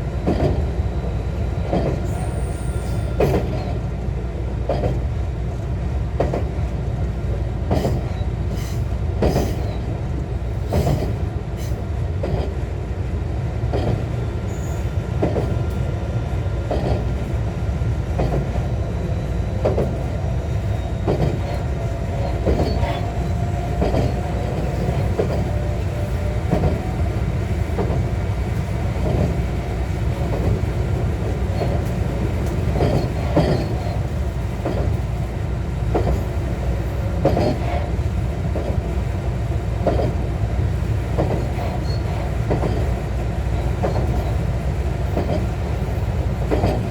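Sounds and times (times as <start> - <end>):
train running with steady rumble: 0.0 - 46.9
wheels clicking over rail joints: 20.9 - 26.9, 46.4 - 46.9.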